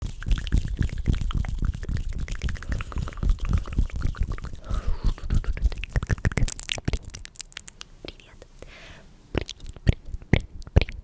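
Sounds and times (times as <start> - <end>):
wet sticky squishing: 0.0 - 7.9.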